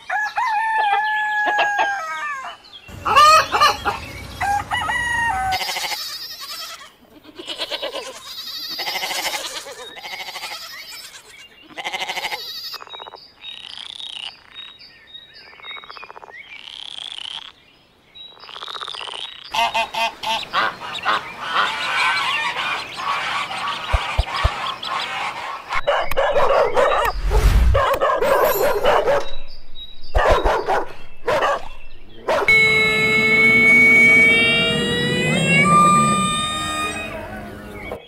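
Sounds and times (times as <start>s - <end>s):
animal calls: 30.2s - 38.0s
steady held tone: 32.5s - 38.0s.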